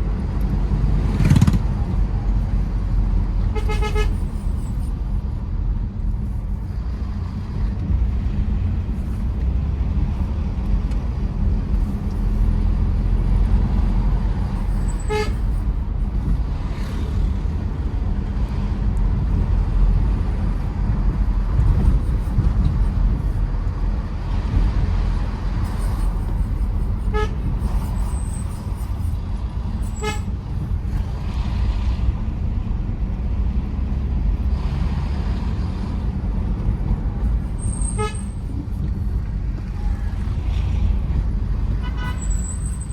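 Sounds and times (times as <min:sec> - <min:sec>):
diesel engine and road noise: 0:00.0 - 0:42.9
car horn toots: 0:03.5 - 0:04.4, 0:14.9 - 0:15.6, 0:27.0 - 0:27.5, 0:29.8 - 0:30.3, 0:37.7 - 0:38.5, 0:41.8 - 0:42.9.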